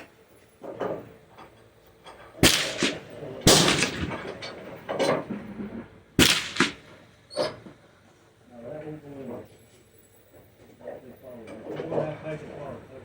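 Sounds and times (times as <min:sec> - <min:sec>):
gunshots with short echo: 0:02.4 - 0:05.2, 0:06.2 - 0:07.0.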